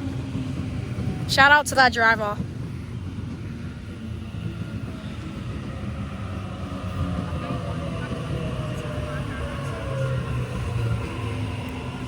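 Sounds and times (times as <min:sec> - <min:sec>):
electric train rumbling: 0:00.0 - 0:12.0
train motor whine: 0:02.4 - 0:12.0.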